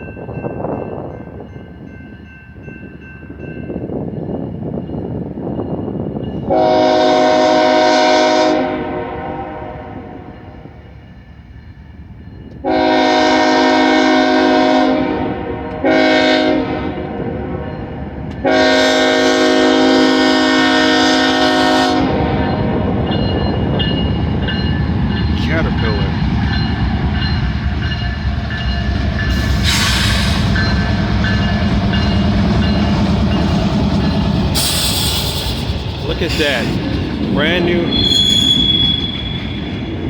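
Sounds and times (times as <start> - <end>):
train rumble: 0.0 - 40.0
locomotive air horn blasts: 6.5 - 10.3, 12.6 - 17.7, 18.4 - 22.9.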